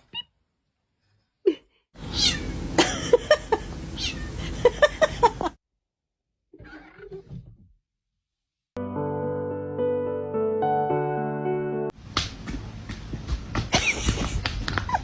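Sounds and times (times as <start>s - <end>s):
cat meowing and chirping: 2.0s - 2.6s, 4.0s - 4.4s
steady hiss: 2.0s - 5.5s.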